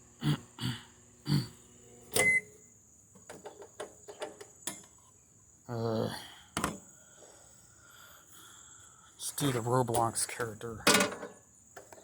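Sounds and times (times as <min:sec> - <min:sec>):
microwave oven humming: 0:00.0 - 0:02.8.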